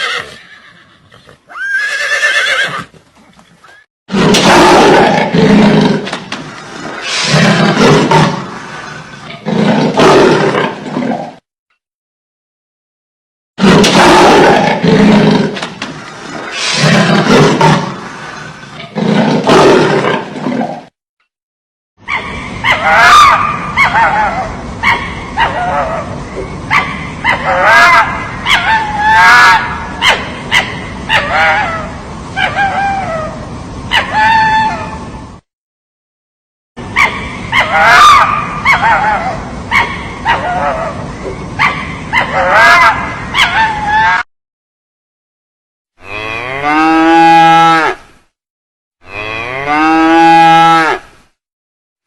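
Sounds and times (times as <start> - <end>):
high-pitched yelping calls: 22.0 - 26.1, 36.9 - 41.0.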